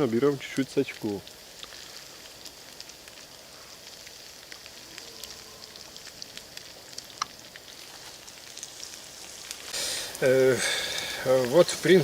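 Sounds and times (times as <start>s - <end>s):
meat sizzling over campfire: 0.0s - 12.0s
small pops: 6.0s - 10.2s.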